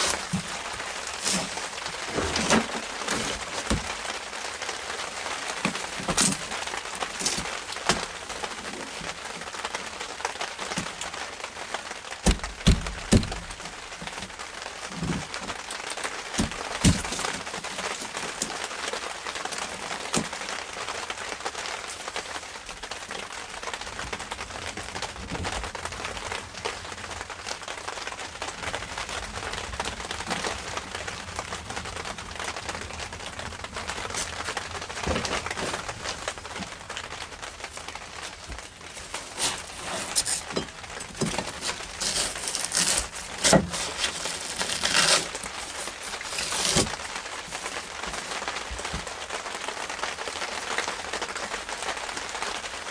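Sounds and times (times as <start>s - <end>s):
rain falling on a canopy: 0.0s - 52.9s
sharp knocks: 12.2s - 13.4s.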